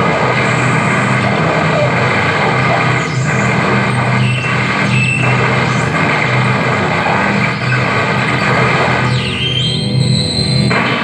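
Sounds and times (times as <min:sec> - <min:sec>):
distorted static noise: 0:00.0 - 0:11.0
low droning hum: 0:00.0 - 0:11.0.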